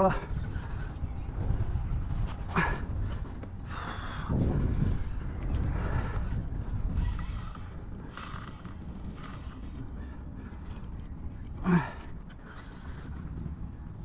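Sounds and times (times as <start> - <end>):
fishing reel drag buzzing: 6.9 - 9.8.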